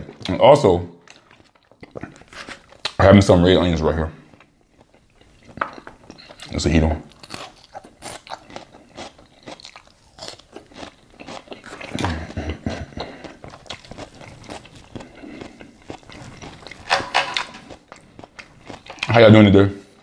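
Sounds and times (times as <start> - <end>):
person crunching and chewing salad: 1.0 - 3.0, 4.2 - 19.2.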